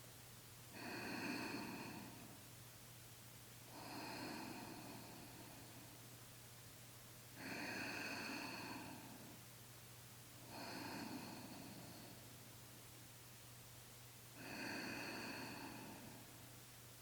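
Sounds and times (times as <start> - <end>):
low steady hum: 0.0 - 17.0
person breathing slowly: 0.7 - 2.4, 3.7 - 6.0, 7.4 - 9.5, 10.4 - 12.4, 14.3 - 16.5.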